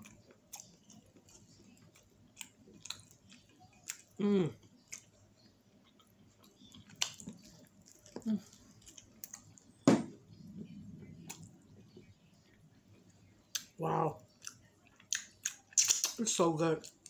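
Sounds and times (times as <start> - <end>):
wet chewing and lip-smacking: 0.0 - 9.7, 14.4 - 16.2.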